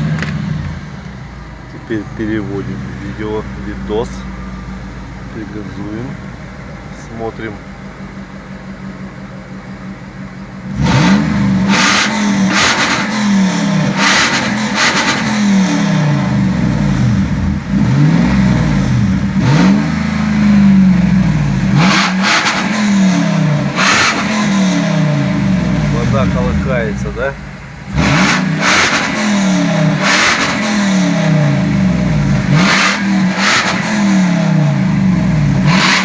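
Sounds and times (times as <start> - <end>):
car engine idling and revving: 0.0 - 36.0.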